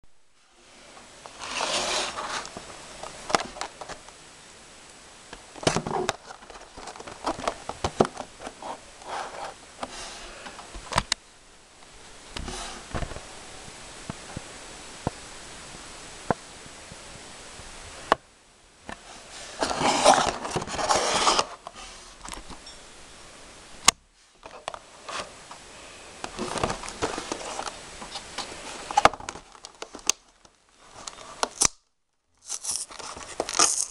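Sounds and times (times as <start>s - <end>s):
steady hiss: 0.1s - 33.9s
packaging scraping and rustling: 1.3s - 4.0s, 5.6s - 10.6s, 19.2s - 22.7s, 26.3s - 31.6s, 32.4s - 33.9s.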